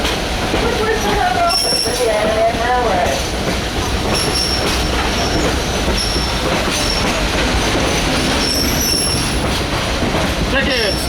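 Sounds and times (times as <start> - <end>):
train rumbling and rattling: 0.0 - 11.0
high-pitched wheel squeals: 8.4 - 9.4.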